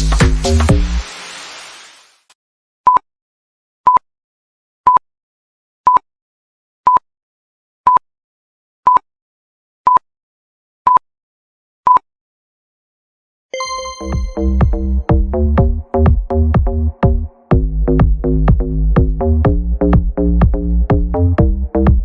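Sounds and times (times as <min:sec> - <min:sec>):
background music: 0:00.0 - 0:01.1, 0:13.6 - 0:22.0.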